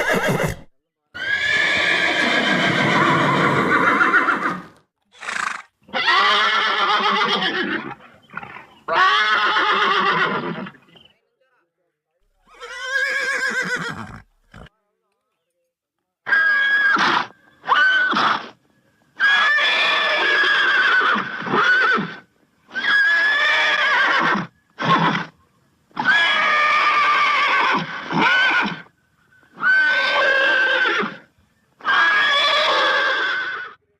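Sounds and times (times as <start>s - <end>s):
horse neighing: 0.0s - 10.8s, 12.4s - 14.7s, 19.2s - 25.3s, 29.5s - 33.8s.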